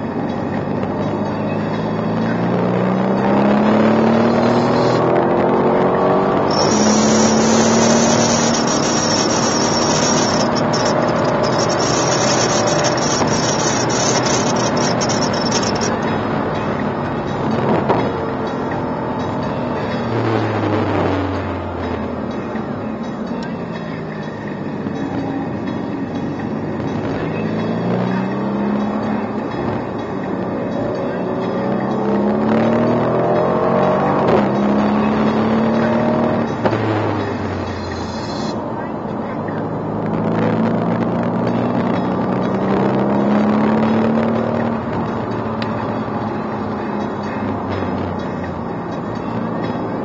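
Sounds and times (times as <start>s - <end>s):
car engine accelerating: 0.0s - 50.0s
car engine under load: 3.0s - 24.1s.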